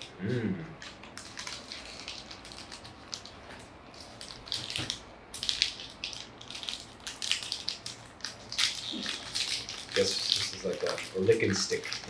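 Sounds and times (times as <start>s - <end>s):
plastic packaging crinkling: 0.8s - 12.0s.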